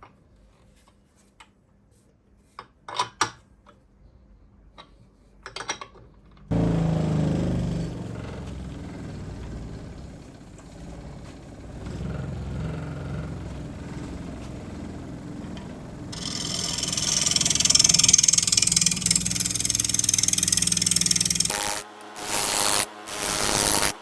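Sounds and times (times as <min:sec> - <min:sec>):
electric power tool motor: 0:06.5 - 0:24.0
tool hissing into wood: 0:16.2 - 0:24.0.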